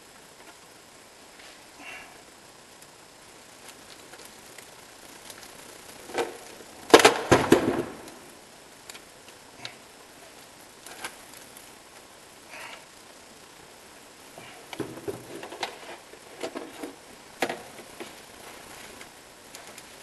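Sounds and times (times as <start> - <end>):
clattering burst: 6.0 - 8.2.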